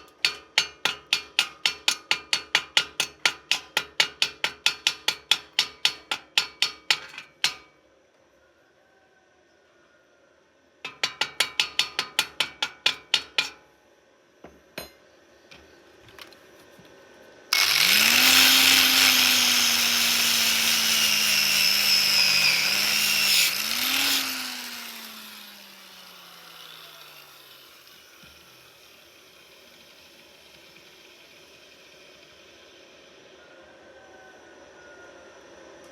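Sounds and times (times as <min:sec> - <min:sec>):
hammer taps on metal: 0:14.4 - 0:15.0
angle grinder grinding metal: 0:17.5 - 0:32.7.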